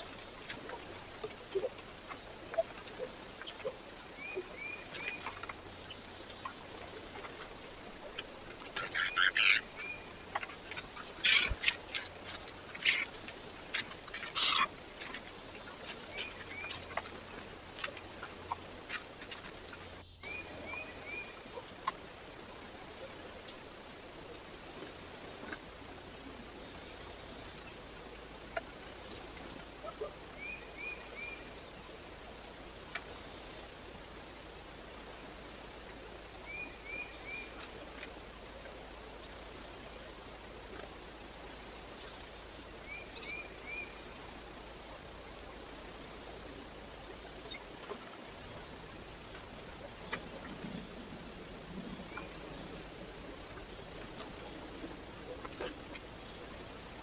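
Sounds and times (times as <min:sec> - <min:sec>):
small bird calling: 0:08.0 - 0:22.0.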